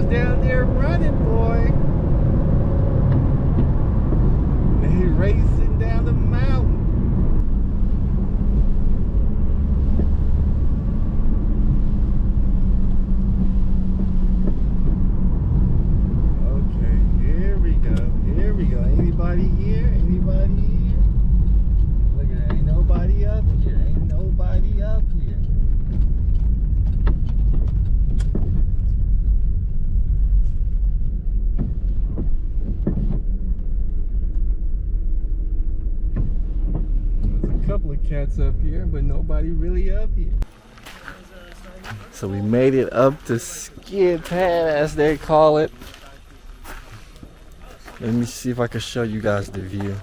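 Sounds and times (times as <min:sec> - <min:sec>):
car engine running: 0:00.0 - 0:50.0
road rumble: 0:00.0 - 0:50.0
sharp knocks or clicks: 0:36.1 - 0:37.7.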